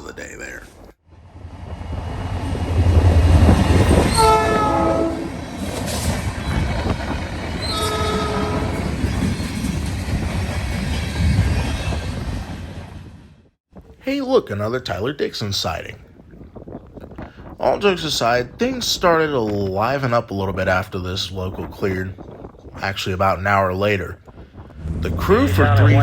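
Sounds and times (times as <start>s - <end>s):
diesel locomotive rumbling past: 1.1s - 13.4s, 24.6s - 26.0s
locomotive horn blasts: 4.1s - 5.4s, 7.7s - 8.8s.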